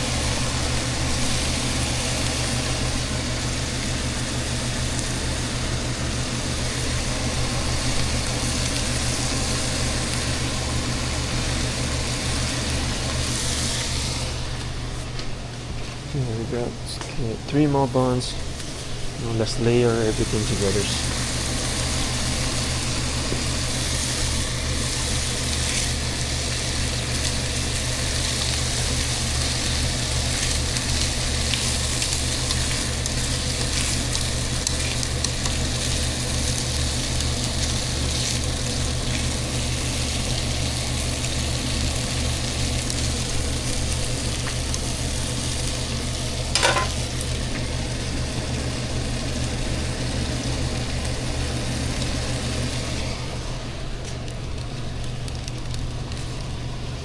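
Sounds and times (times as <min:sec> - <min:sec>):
food sizzling in frying: 0:00.0 - 0:15.1, 0:18.4 - 0:57.0.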